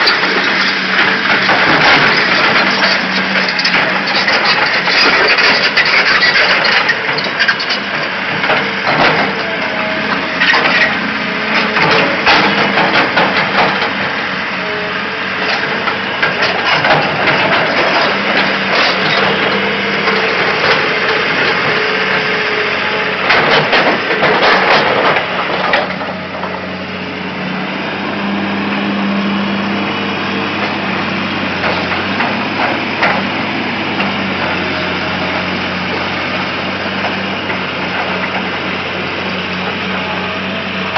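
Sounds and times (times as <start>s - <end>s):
excavator engine running: 0.0s - 40.9s
sharp knocks and cracks: 11.6s - 14.0s.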